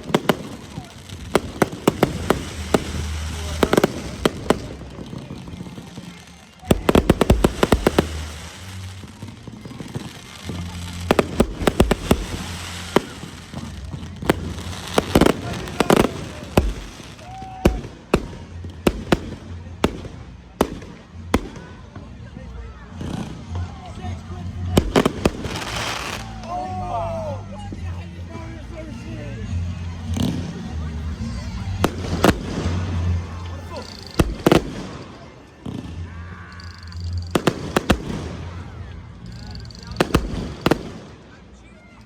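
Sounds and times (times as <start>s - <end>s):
fireworks bangs and crackles: 0.0s - 29.0s, 29.6s - 42.0s.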